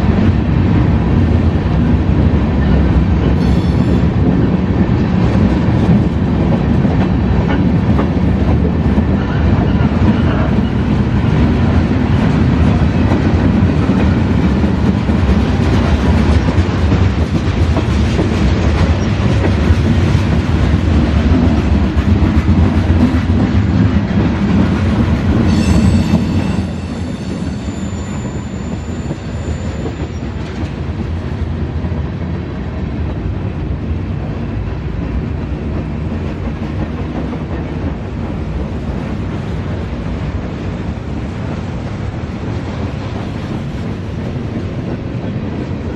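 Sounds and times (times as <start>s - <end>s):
freight train cars rumbling: 0.0s - 45.9s
metallic wheel squeal: 25.4s - 30.6s.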